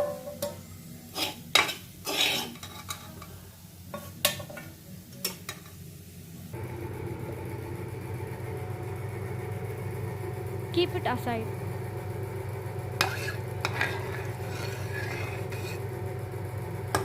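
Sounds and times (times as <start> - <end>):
spoon scraping a pan: 1.1 - 3.2, 13.0 - 15.9
steady low hum: 6.5 - 17.0.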